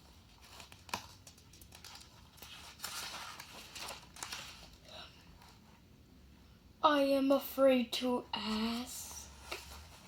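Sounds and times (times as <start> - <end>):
book page turning: 0.3 - 4.8.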